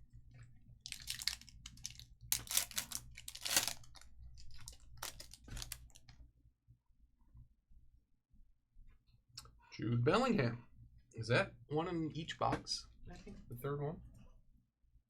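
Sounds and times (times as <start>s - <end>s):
foil wrapper crinkling: 0.8s - 6.2s.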